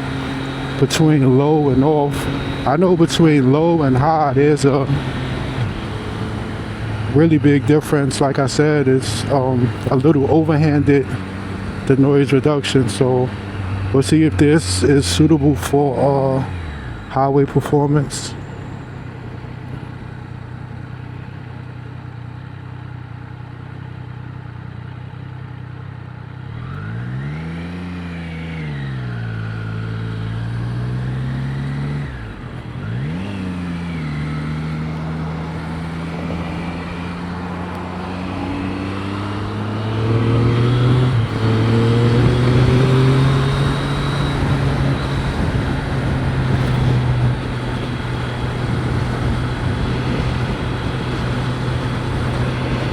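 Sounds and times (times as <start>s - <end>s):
motorcycle engine revving: 0.0s - 52.9s
wind noise in helmet: 35.5s - 52.9s.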